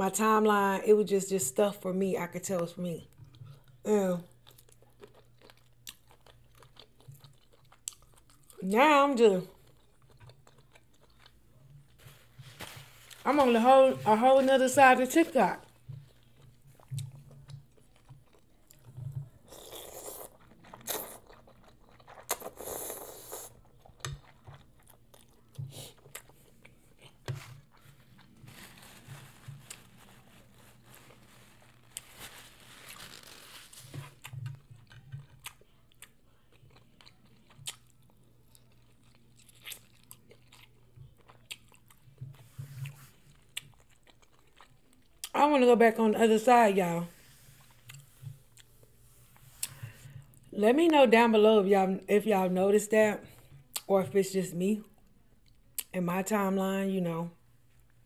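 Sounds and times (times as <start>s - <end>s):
chewing and biting food: 3.1s - 8.6s, 9.5s - 12.2s, 15.6s - 32.2s, 33.7s - 45.3s.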